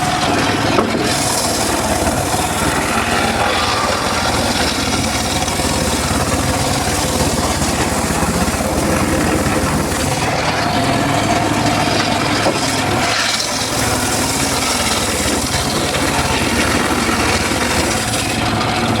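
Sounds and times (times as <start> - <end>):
engine running: 0.0 - 19.0
saw blade cutting wood: 0.0 - 19.0.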